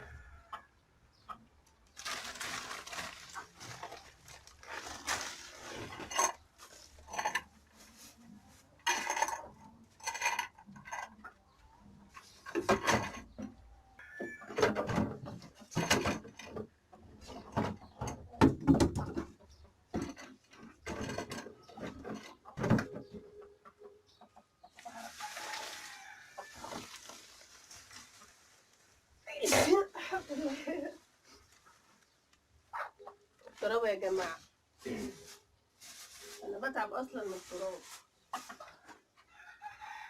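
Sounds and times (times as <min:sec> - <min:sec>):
household items knocking and clattering: 0:12.4 - 0:13.6, 0:14.4 - 0:23.1.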